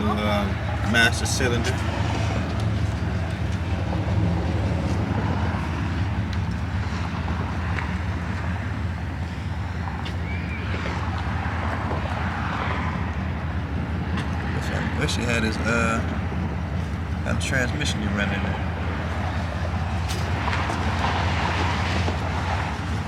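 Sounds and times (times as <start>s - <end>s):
faint voices: 0.0s - 4.2s, 14.4s - 16.3s, 17.1s - 20.0s.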